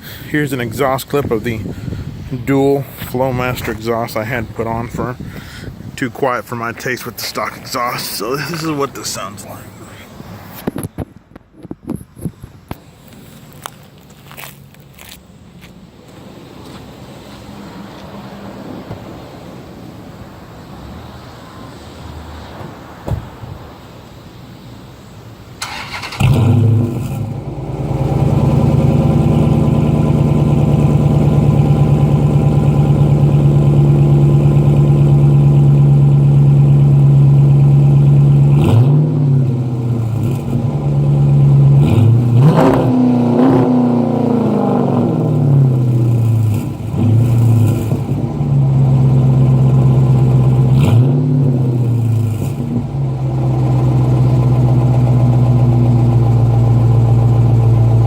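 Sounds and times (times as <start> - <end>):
car engine revving: 25.6 - 58.0.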